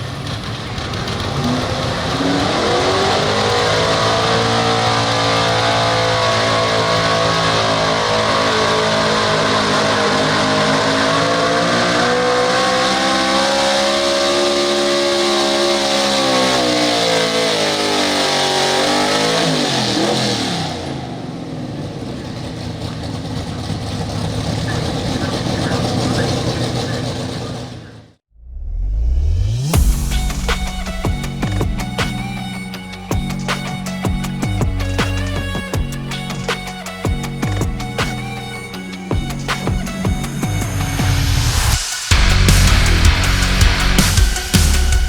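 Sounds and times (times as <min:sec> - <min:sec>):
truck engine at high revs: 0:00.0 - 0:45.0.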